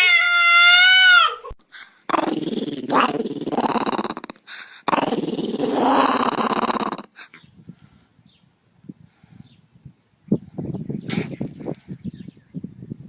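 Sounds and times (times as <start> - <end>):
dog growling: 2.1 - 7.2.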